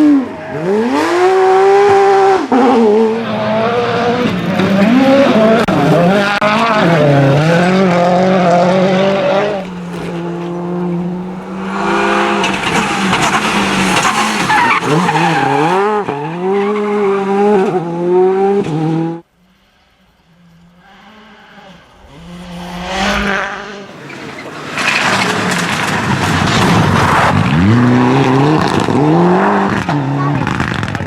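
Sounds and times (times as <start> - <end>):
rally car engine revving: 0.0 - 31.0
tyres sliding: 9.3 - 17.8, 23.8 - 27.6.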